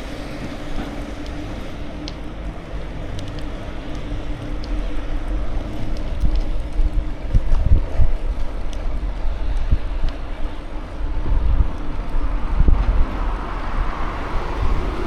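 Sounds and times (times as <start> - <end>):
bicycle tyres rolling on road: 0.0 - 15.0
wind buffeting microphone: 3.4 - 15.0.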